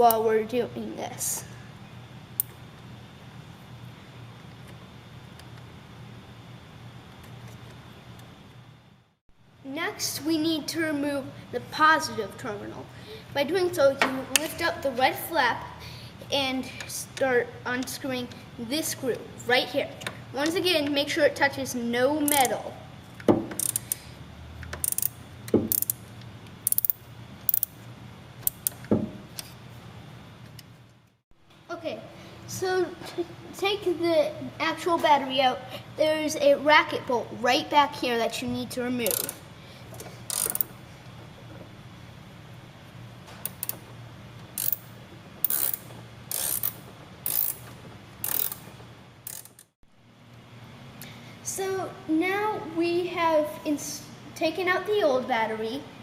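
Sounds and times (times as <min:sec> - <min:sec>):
ratchet wrench clicking: 0:22.3 - 0:22.5, 0:23.6 - 0:27.8, 0:28.4 - 0:28.9, 0:39.0 - 0:39.4, 0:40.3 - 0:40.8, 0:43.4 - 0:43.9, 0:44.5 - 0:49.7.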